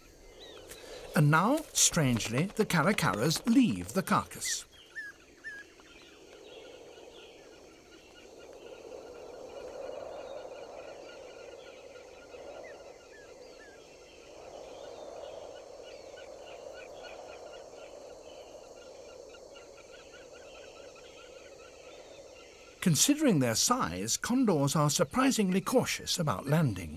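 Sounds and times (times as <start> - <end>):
chattering bird calls: 0.0 - 8.8, 20.1 - 26.9.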